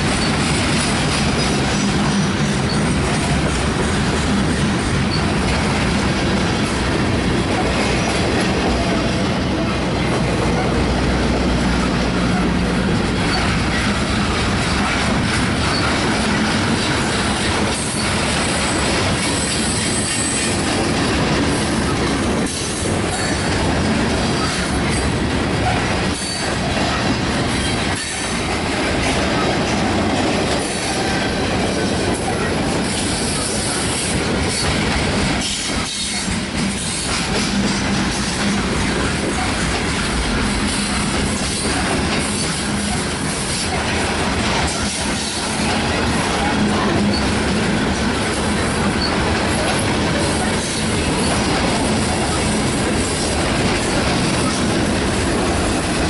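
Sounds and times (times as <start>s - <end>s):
steel wheels on rails: 0.0s - 56.0s.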